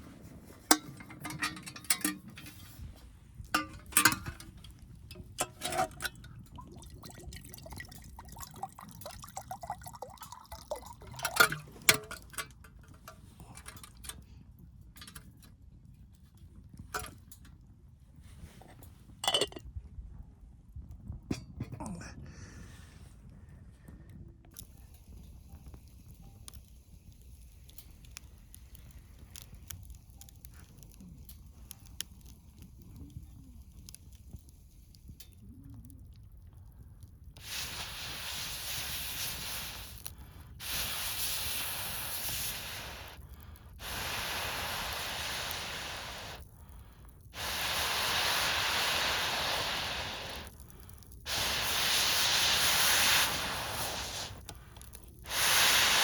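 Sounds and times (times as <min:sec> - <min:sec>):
campfire crackling: 0:00.0 - 0:15.6, 0:24.6 - 0:56.0
breath blown into fire: 0:37.4 - 0:56.0.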